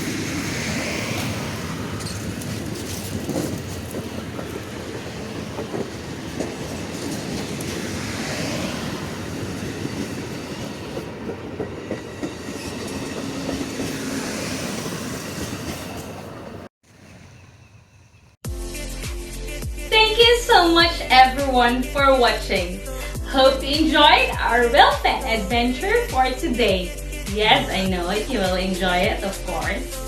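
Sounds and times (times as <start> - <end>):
train wheels clattering over rails: 0.0 - 16.7.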